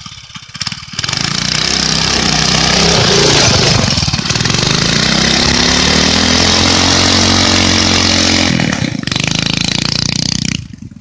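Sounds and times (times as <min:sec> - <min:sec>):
minibike engine revving: 0:00.0 - 0:11.0.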